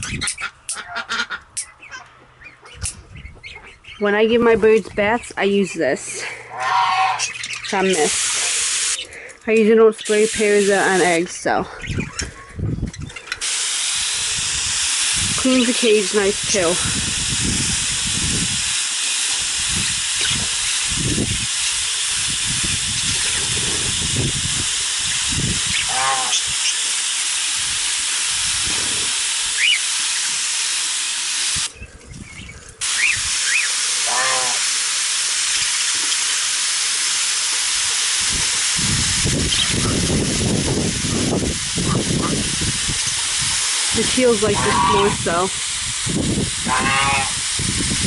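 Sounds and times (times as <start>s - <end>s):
budgies chirping: 0.0s - 4.4s, 6.0s - 13.4s, 19.8s - 20.5s, 25.0s - 26.9s, 29.6s - 30.4s, 31.8s - 34.2s, 39.4s - 40.1s
water mister spraying: 4.0s - 11.7s, 13.4s - 31.8s, 32.5s - 48.0s.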